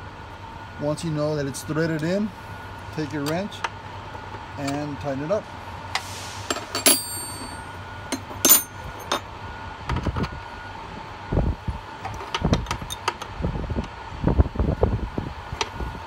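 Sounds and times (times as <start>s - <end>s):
wrench clinking on metal fitting: 6.8s - 9.2s.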